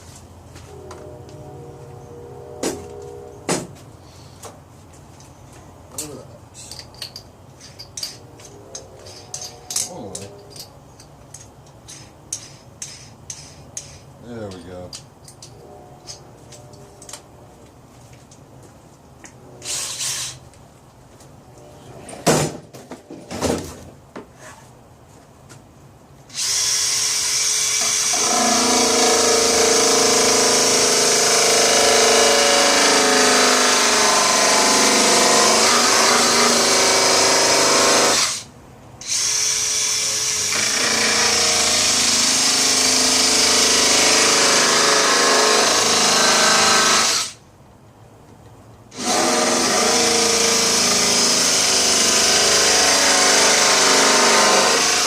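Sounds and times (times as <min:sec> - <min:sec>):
power tool cutting wheel cutting: 0:26.3 - 0:47.4, 0:48.9 - 0:55.0.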